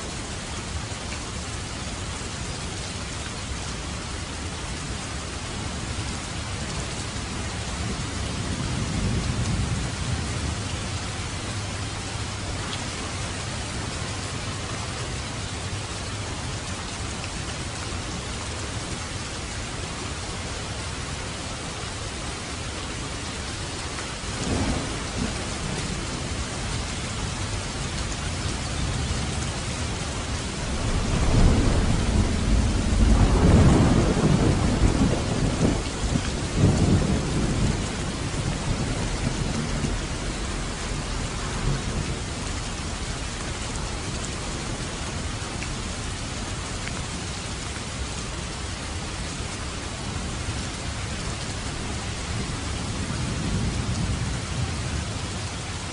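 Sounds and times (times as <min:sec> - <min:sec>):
steady rain: 0:00.0 - 0:55.9
thunder rumbling: 0:24.2 - 0:27.6, 0:30.2 - 0:43.1, 0:52.3 - 0:55.3.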